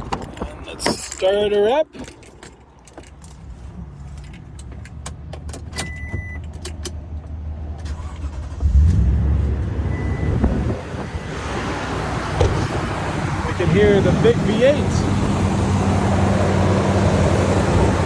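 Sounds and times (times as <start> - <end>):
light clicks and jingles: 0.2 - 5.6
engine rumbling on cold start: 7.8 - 13.2.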